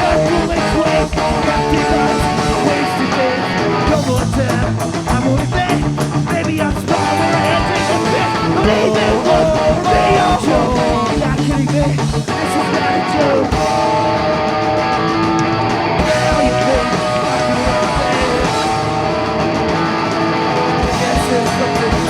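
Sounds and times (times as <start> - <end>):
bass guitar: 0.0 - 22.0
drums: 0.0 - 22.0
strummed electric guitar: 0.0 - 22.0.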